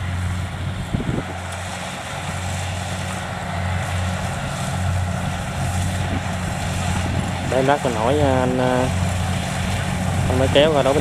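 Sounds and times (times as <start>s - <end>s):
combine harvester running: 0.0s - 11.0s.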